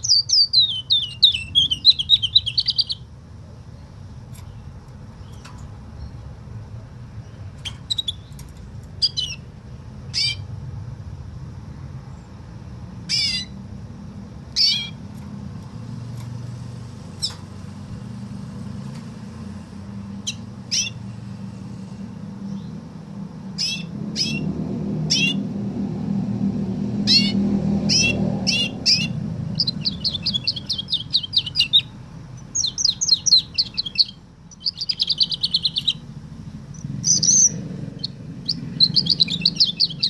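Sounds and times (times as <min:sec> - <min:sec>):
canary whistling: 0:00.0 - 0:03.1, 0:07.6 - 0:08.3, 0:09.0 - 0:09.5, 0:13.1 - 0:13.6, 0:14.6 - 0:15.0, 0:20.2 - 0:21.0, 0:23.6 - 0:24.5, 0:25.1 - 0:25.4, 0:27.0 - 0:36.0, 0:36.8 - 0:40.0
steady low hum: 0:00.0 - 0:40.0.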